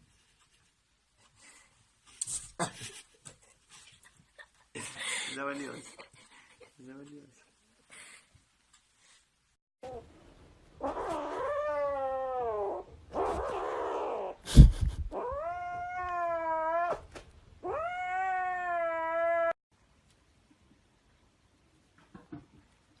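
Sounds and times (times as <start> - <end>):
cat yowling: 10.8 - 14.4, 17.6 - 19.6.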